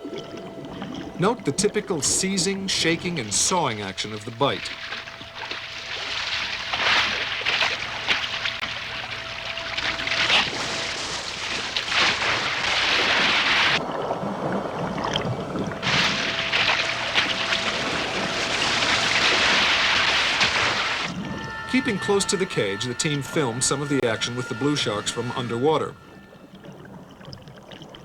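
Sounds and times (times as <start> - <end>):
faint steady hum: 0.0 - 28.0
water splashing and churning: 0.0 - 28.0.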